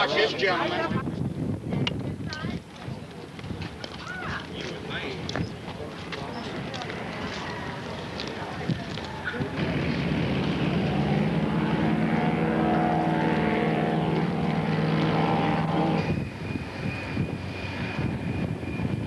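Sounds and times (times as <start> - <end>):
propeller airplane engine passing: 6.0 - 19.0
thin high whine: 9.6 - 19.0.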